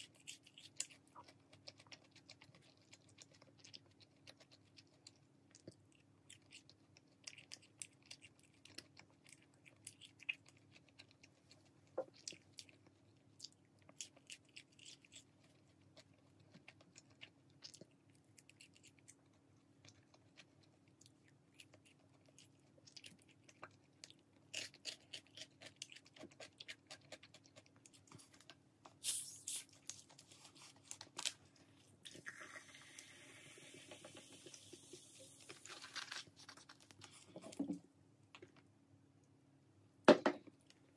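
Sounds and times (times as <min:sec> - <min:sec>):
chewing with crunches: 0:00.0 - 0:38.7
cola poured and fizzing: 0:32.0 - 0:35.6.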